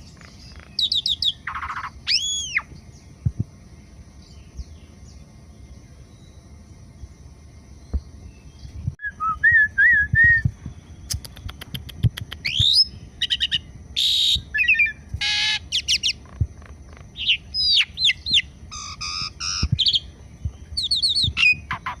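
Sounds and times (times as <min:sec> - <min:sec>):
starling singing: 0:00.0 - 0:02.8, 0:12.4 - 0:22.0.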